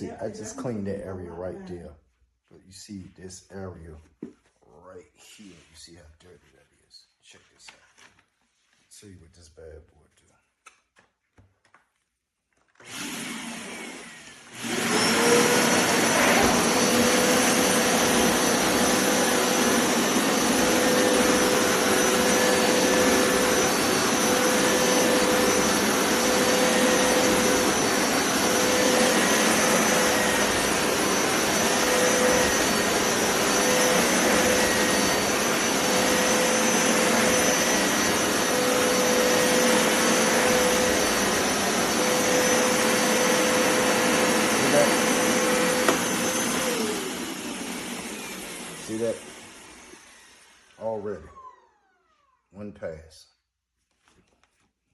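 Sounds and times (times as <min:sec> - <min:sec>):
carpet cleaner motor whine: 0:12.8 - 0:52.4.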